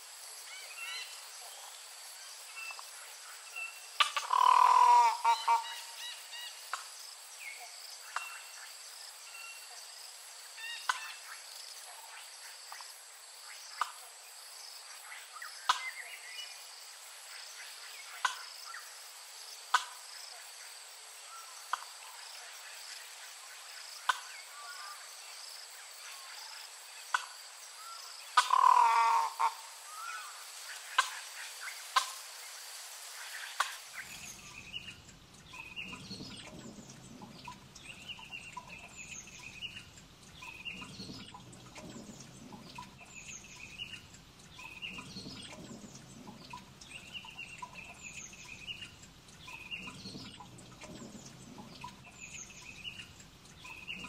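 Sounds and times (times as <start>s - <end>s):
high insect drone: 0.0s - 54.0s
bird chirps: 7.4s - 8.6s, 33.5s - 54.0s.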